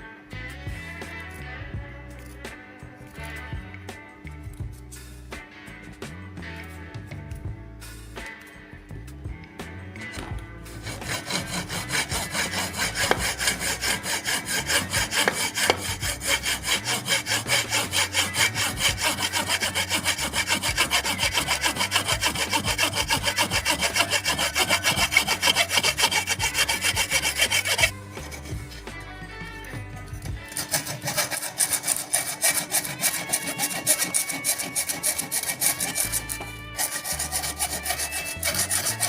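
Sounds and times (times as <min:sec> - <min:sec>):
blade sharpening strokes: 0:10.7 - 0:29.0, 0:29.7 - 0:39.0.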